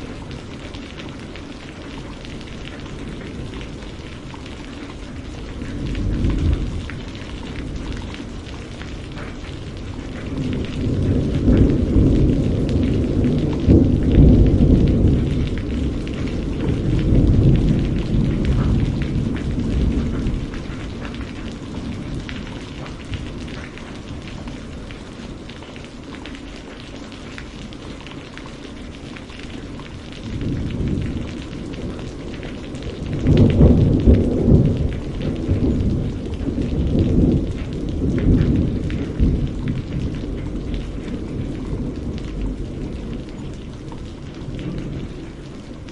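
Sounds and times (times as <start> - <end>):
rolling thunder: 0.0 - 25.6, 29.8 - 45.9
rain falling: 0.0 - 45.9.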